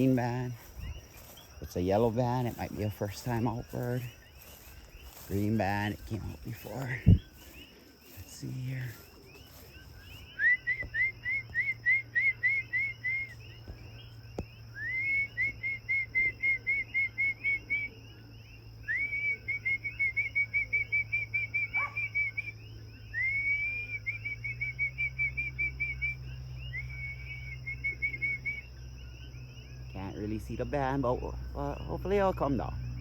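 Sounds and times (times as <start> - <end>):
high insect drone: 0.0 - 33.0
whistled phrases: 10.3 - 13.4, 14.8 - 17.9, 18.9 - 22.5, 23.1 - 26.2.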